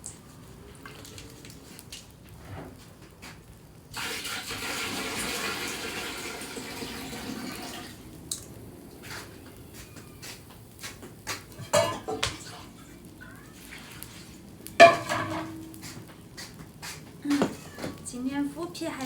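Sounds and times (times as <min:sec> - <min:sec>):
tap running water: 0:03.9 - 0:08.5
dishes and utensils clinking: 0:11.5 - 0:12.7, 0:14.8 - 0:15.7.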